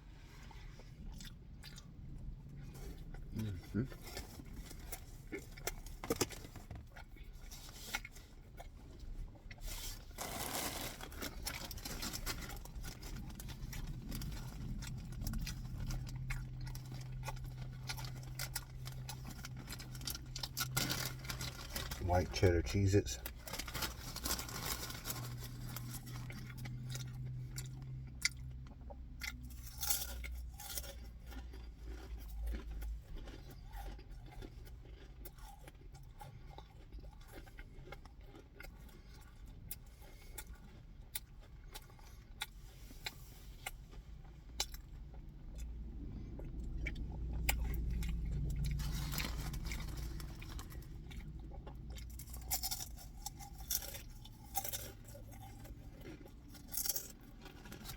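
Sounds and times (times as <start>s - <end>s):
crunching and chewing crackers: 0.0s - 57.9s
low rumble: 11.1s - 29.7s, 43.7s - 53.6s.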